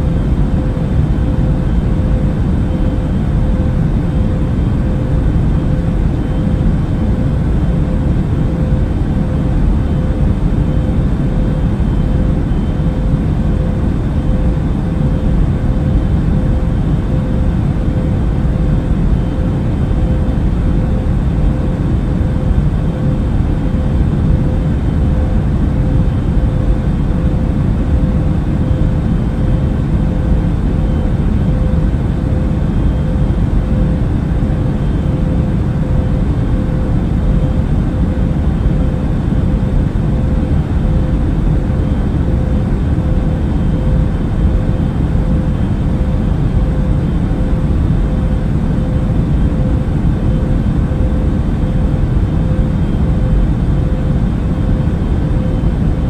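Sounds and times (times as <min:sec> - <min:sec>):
airliner cabin noise: 0:00.0 - 0:56.0
faint steady hum: 0:00.0 - 0:56.0.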